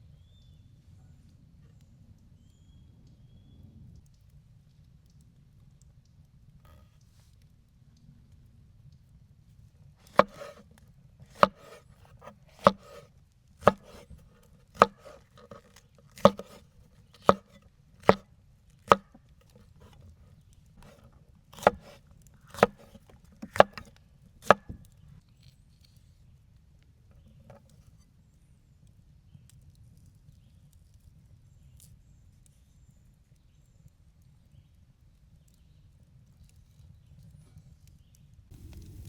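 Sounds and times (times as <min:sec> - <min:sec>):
blade chopping: 0:10.0 - 0:10.7, 0:11.3 - 0:18.2, 0:18.9 - 0:20.0, 0:20.8 - 0:24.9.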